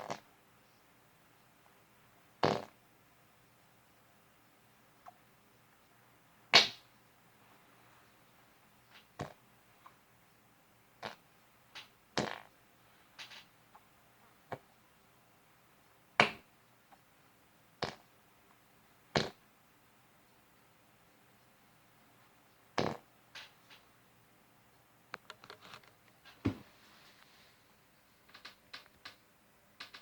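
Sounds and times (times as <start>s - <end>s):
fart noises: 0.0s - 0.2s, 2.4s - 2.8s, 9.2s - 9.4s, 11.0s - 11.2s, 12.2s - 12.5s, 17.8s - 18.1s, 19.1s - 19.4s, 22.8s - 23.1s
faint steady hum: 0.0s - 30.0s.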